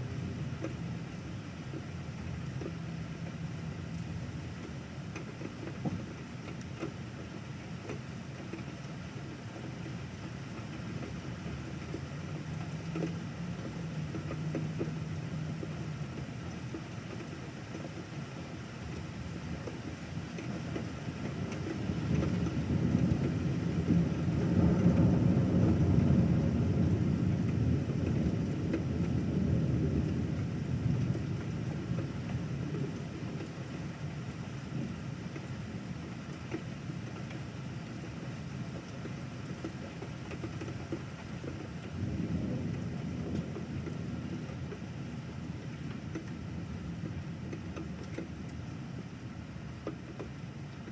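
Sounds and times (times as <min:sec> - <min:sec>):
rolling thunder rumble: 0:21.9 - 0:34.0, 0:41.9 - 0:47.4.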